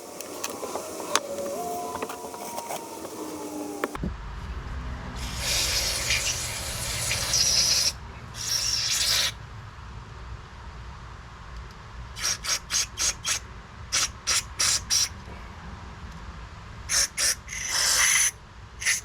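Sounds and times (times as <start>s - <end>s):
aerosol spray hissing: 5.2s - 9.4s, 12.2s - 15.2s, 16.9s - 19.0s.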